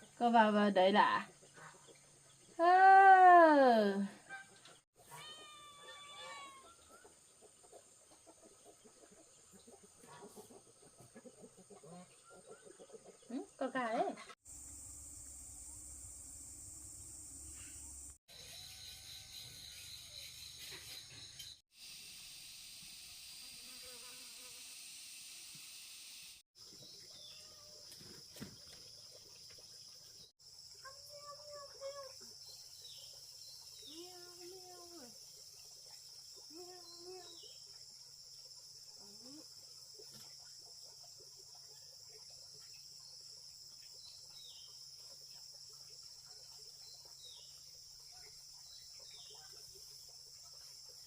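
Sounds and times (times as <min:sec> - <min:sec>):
chickens clucking: 0:07.0 - 0:13.6
high-pitched insect drone: 0:14.5 - 0:26.4.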